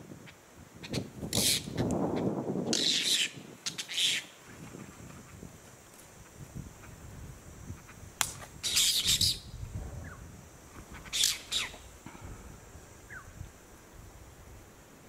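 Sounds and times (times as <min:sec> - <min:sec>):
harsh bird squawking: 0:02.7 - 0:04.3, 0:08.6 - 0:09.4, 0:10.9 - 0:11.8
sharp click: 0:08.2 - 0:08.5.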